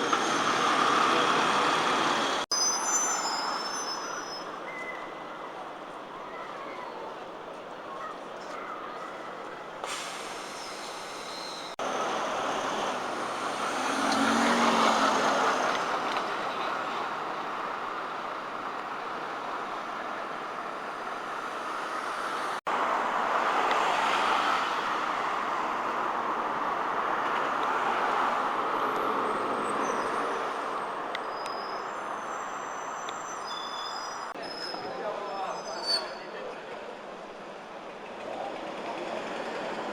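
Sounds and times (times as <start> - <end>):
city street traffic: 0.0 - 39.9
vehicle passing by: 12.0 - 16.4.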